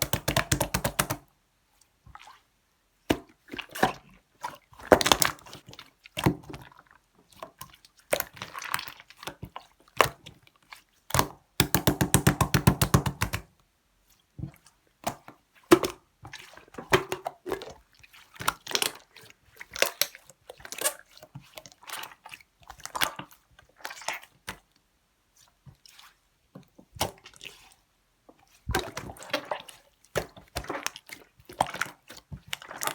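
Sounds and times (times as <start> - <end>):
hands squishing slime: 0.0 - 1.2, 11.2 - 13.5
wet clicks: 0.0 - 1.2, 11.2 - 13.5.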